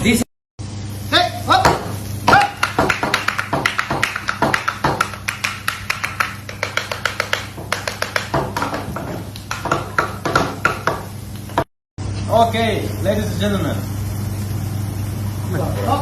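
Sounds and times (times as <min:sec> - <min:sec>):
utensil tapping against bowl: 0:01.7 - 0:11.7.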